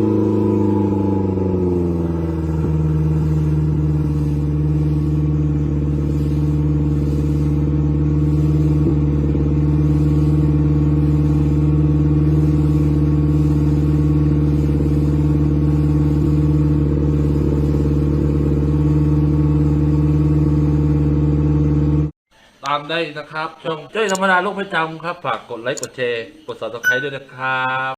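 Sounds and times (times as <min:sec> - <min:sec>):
boat engine humming: 0:00.0 - 0:21.9.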